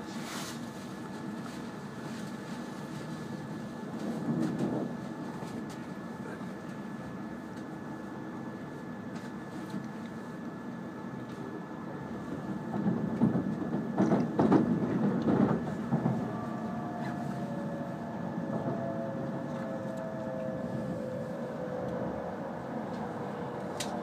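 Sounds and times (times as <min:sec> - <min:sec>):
train running rumble: 0:00.0 - 0:24.0
train brake whine: 0:15.6 - 0:24.0.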